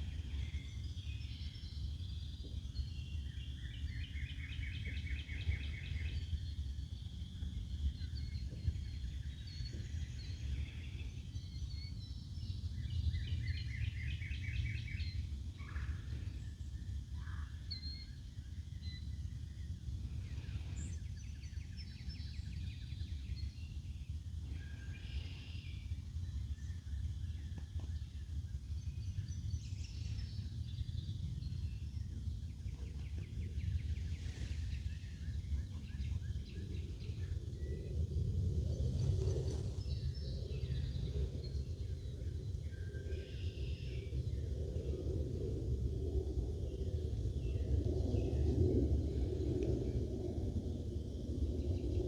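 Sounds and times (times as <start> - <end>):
steady low rumble: 19.4 - 52.0.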